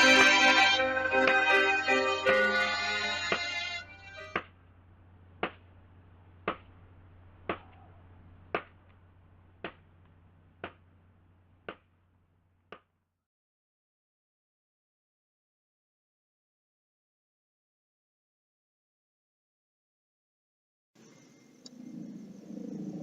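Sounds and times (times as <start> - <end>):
music: 0.0 - 4.4
low hum: 0.0 - 12.8, 21.0 - 23.0.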